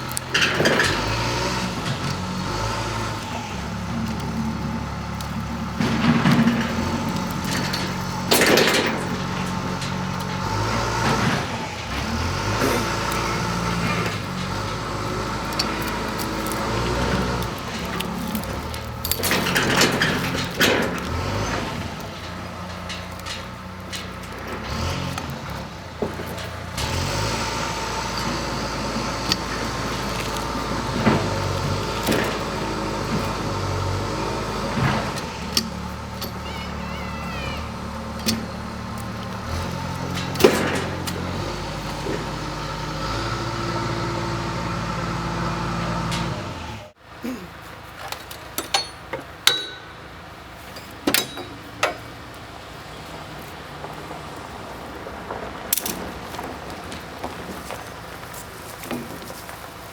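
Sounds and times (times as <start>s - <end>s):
loud knocks and clunks: 0.0s - 47.0s
vehicle engine running: 0.0s - 47.9s.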